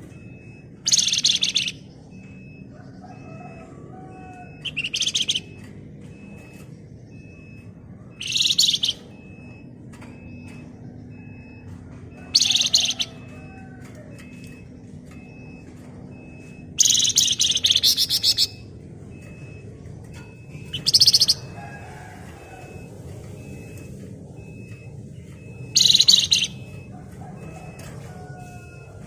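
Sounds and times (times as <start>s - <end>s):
songbird chattering trills: 0.8s - 2.1s, 4.3s - 5.6s, 8.2s - 9.1s, 12.3s - 13.5s, 16.4s - 18.6s, 20.6s - 21.6s, 25.6s - 26.7s.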